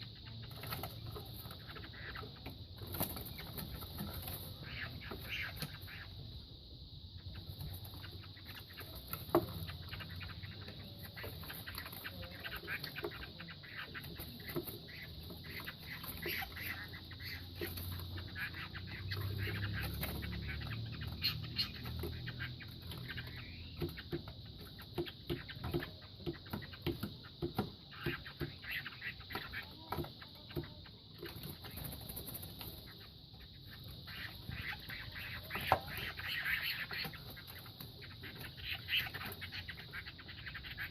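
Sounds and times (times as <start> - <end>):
roosters fighting with wing flaps: 2.8 - 4.6.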